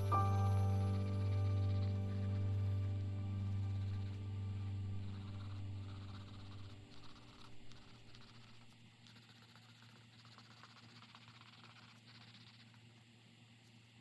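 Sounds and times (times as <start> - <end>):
low music note: 0.0 - 6.8
pencils scratching on paper: 0.0 - 13.0.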